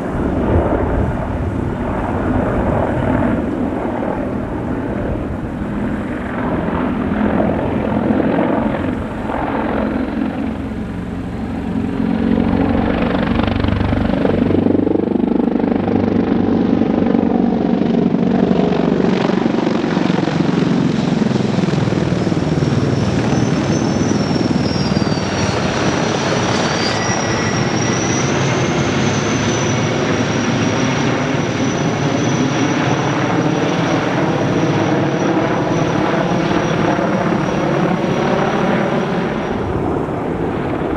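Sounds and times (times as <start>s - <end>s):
helicopter flying past: 0.0s - 40.9s
high whine wavering in pitch: 22.6s - 33.2s.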